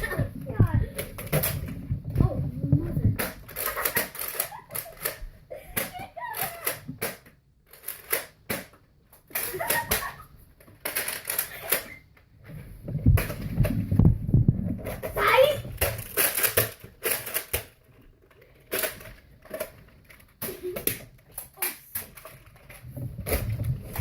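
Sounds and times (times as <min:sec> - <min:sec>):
toy blasters clicking: 0:03.5 - 0:08.4, 0:15.3 - 0:17.8.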